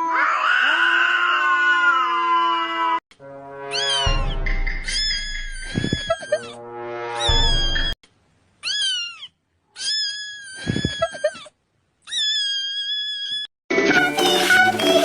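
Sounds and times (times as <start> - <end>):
cat meowing: 0.0 - 3.0, 3.7 - 4.2, 4.8 - 6.5.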